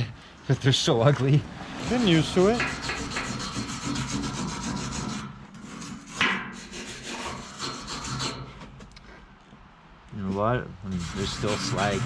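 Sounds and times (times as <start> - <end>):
wire brush scrubbing steel: 1.7 - 8.8, 10.8 - 12.0.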